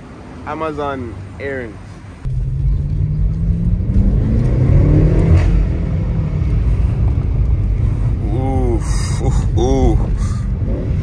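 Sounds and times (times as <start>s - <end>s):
car engine accelerating: 2.2s - 11.0s.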